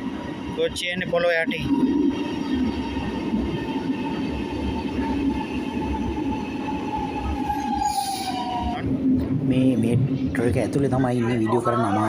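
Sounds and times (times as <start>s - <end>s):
high train whine: 0.0s - 12.0s
metro train rumble: 0.0s - 12.0s.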